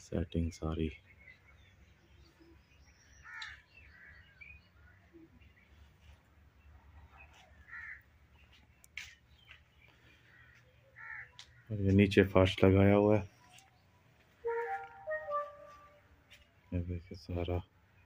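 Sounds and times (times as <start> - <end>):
faint bird calls: 1.1 - 11.7.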